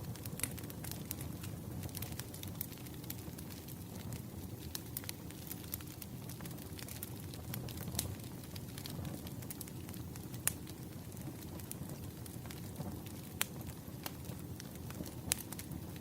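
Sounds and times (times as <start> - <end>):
firewood crackling and popping: 0.0 - 16.0.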